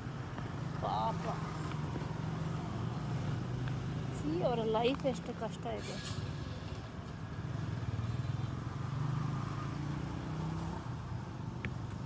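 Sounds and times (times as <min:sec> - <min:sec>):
vehicle engine passing by: 0:07.5 - 0:12.0.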